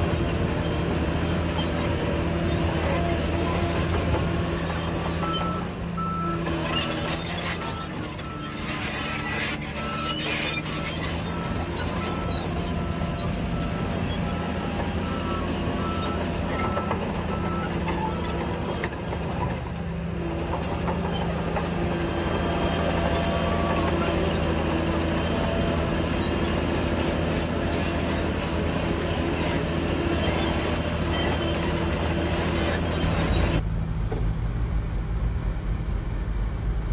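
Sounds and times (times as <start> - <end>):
bulldozer diesel engine running: 0.0 - 36.9.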